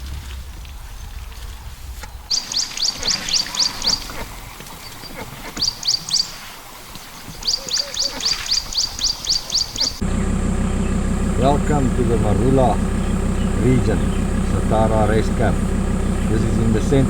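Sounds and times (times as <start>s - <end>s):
low rumble: 0.0s - 2.3s, 10.0s - 17.0s
bird chirping rapidly: 2.3s - 10.0s, 10.6s - 17.0s.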